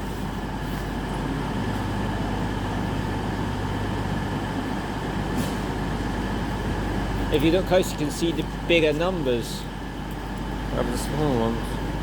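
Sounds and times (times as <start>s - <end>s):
train diesel engines idling: 0.0s - 12.0s.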